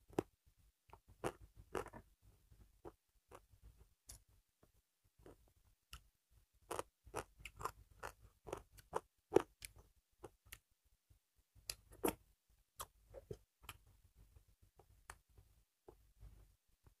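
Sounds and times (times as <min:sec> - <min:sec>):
close-up chewing and mouth sounds: 0:00.1 - 0:00.3, 0:00.9 - 0:02.0, 0:06.7 - 0:10.7.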